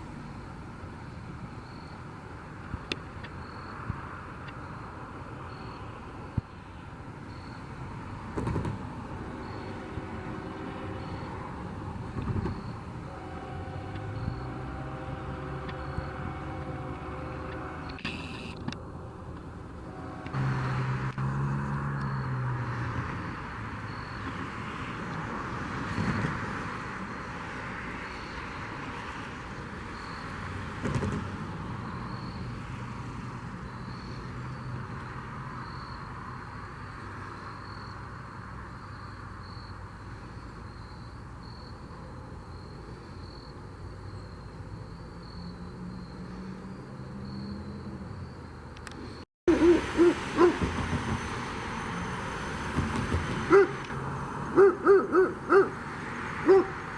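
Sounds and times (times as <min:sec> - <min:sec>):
low diesel engine drone: 0:00.0 - 0:35.5, 0:40.0 - 0:55.8
train wheel and rail noise: 0:08.3 - 0:20.5, 0:49.7 - 0:54.0.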